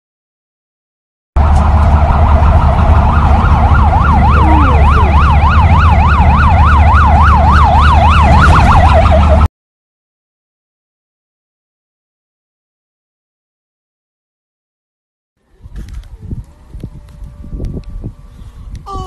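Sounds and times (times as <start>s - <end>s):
electronic siren yelping: 1.4s - 9.5s
loud low rumble: 1.4s - 9.5s, 15.5s - 18.9s.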